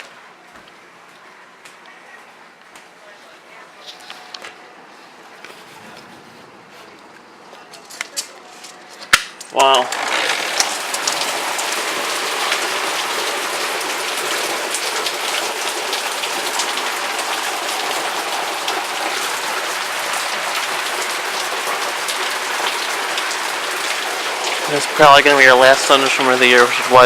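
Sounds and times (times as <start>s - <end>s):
heavy rain pouring: 9.5s - 27.0s.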